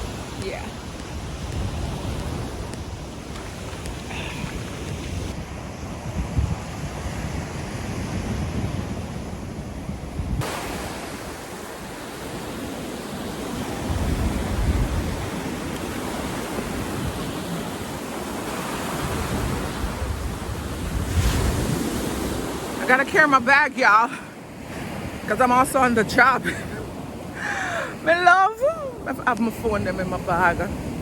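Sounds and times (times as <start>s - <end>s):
surf breaking on beach: 0.0s - 9.7s, 10.3s - 24.0s
wind rumbling on microphone: 0.0s - 23.2s.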